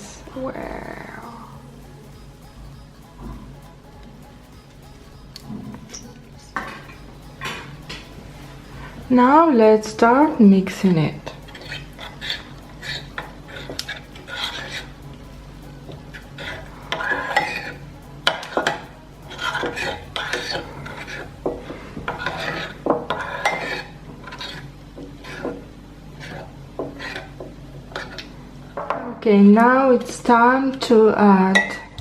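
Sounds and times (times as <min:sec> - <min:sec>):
utensil scraping a bowl: 0:05.6 - 0:28.4.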